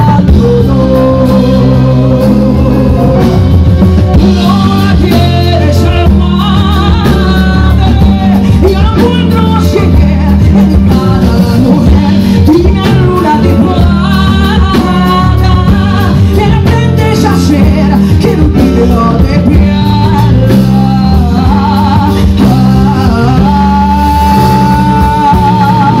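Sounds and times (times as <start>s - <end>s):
instrumental accompaniment: 0.0s - 26.0s
woman singing a ballad: 0.0s - 26.0s.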